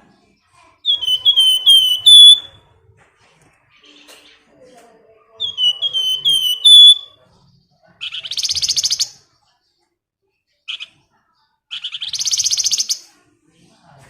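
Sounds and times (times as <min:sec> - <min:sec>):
bird chirp: 0:00.8 - 0:02.6, 0:05.3 - 0:09.3, 0:11.7 - 0:13.1
songbird whistled notes: 0:00.9 - 0:02.6, 0:05.4 - 0:07.2.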